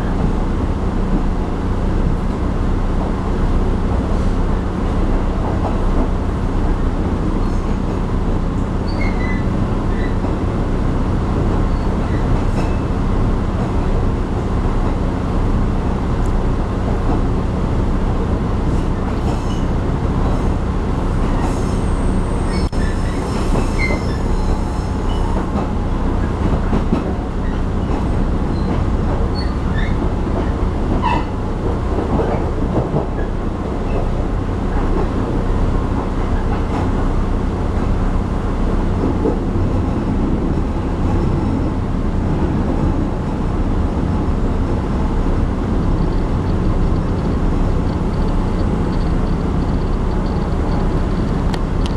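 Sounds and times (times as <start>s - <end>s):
train wheels rumbling on rails: 0.0s - 51.9s
high wheel squeals: 8.8s - 10.2s, 21.4s - 25.5s.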